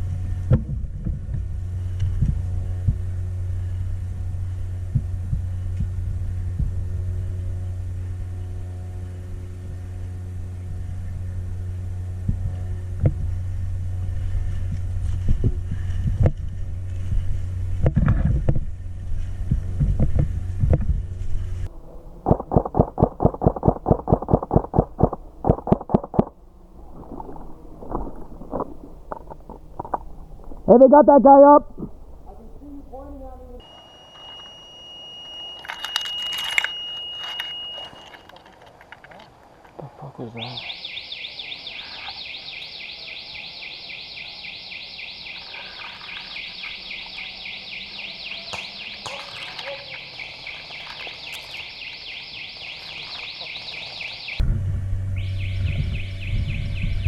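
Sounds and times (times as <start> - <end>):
high-pitched warbling tone: 21.7 - 33.0
sharp clicks: 22.2 - 26.4.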